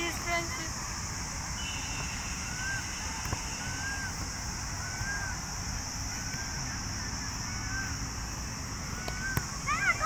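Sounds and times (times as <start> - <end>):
high insect drone: 0.0 - 10.0
bird whistling call: 1.6 - 4.2, 4.8 - 5.4.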